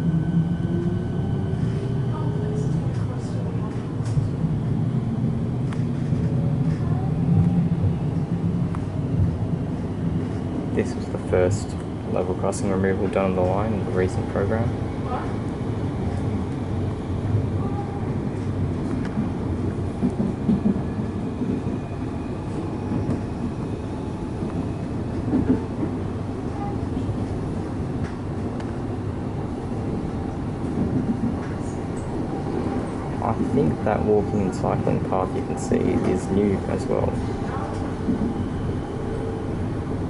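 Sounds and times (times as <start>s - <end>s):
train rumbling inside carriage: 0.0s - 40.0s.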